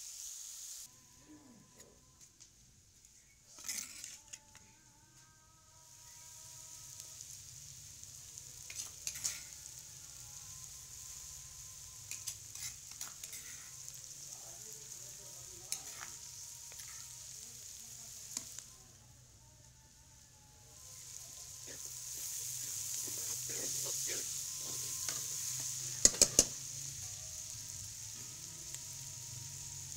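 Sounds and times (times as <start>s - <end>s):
vegetables sizzling in hot oil: 0.0s - 0.9s, 5.7s - 29.9s
spoon scraping and clinking pan: 26.0s - 26.6s.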